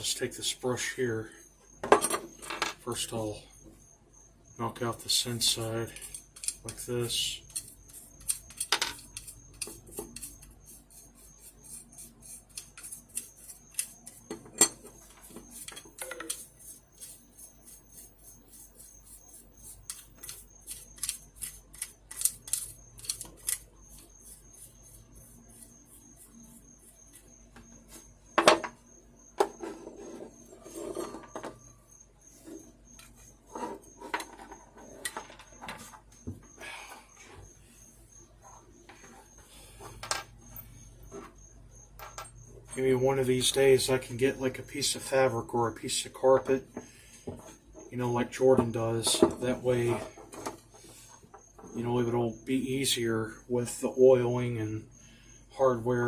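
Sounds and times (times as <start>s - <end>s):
brush scratching metal: 4.8s - 28.1s, 29.5s - 31.4s
metal parts clinking on table: 8.5s - 9.3s, 15.7s - 16.4s.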